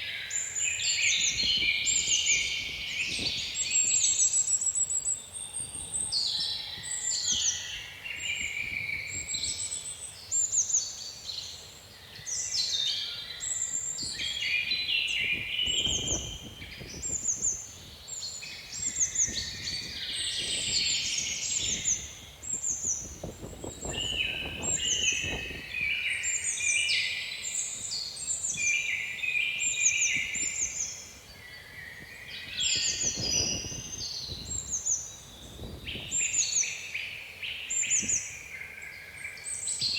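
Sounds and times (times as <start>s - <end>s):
songbirds chirping and singing: 0.0s - 39.9s
wind rumbling on microphone: 0.7s - 4.2s, 5.5s - 9.6s, 13.7s - 26.2s, 29.9s - 36.6s.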